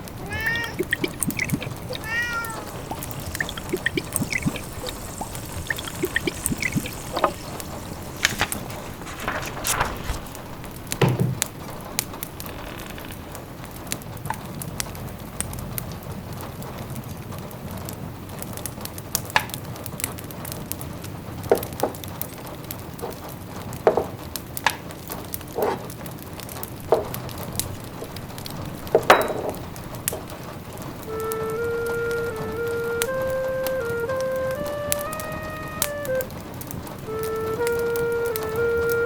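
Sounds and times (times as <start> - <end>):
fire hissing: 0.0 - 12.5
fire pops and snaps: 0.8 - 13.4.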